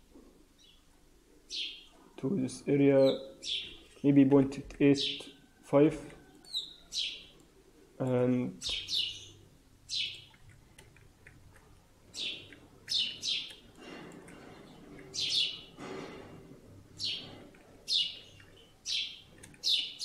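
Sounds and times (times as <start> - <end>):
small bird chirping: 1.5 - 2.0, 3.0 - 4.2, 6.2 - 7.4, 8.5 - 13.7, 14.3 - 15.8, 16.9 - 20.0.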